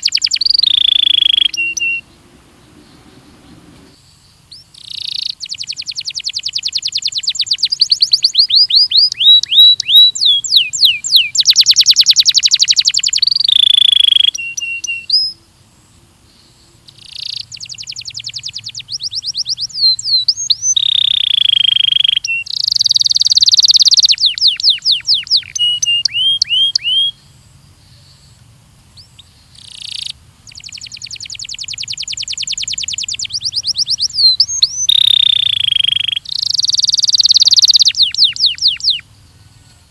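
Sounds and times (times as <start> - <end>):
canary singing: 0.0 - 15.4, 16.4 - 39.9.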